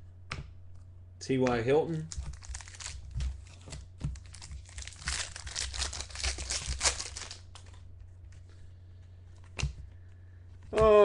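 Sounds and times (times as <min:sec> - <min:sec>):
plastic wrapper crinkling and tearing: 0:02.0 - 0:07.8.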